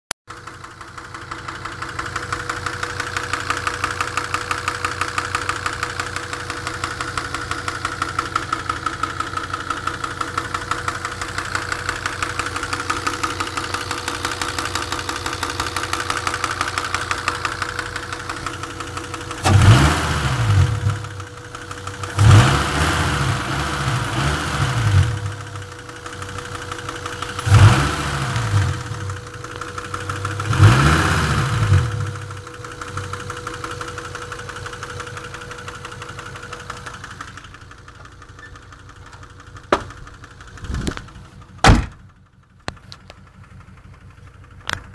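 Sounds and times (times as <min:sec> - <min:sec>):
engine idling with regular knock: 0:00.3 - 0:19.8, 0:20.8 - 0:22.4, 0:25.2 - 0:27.7, 0:28.5 - 0:30.8, 0:31.7 - 0:44.9.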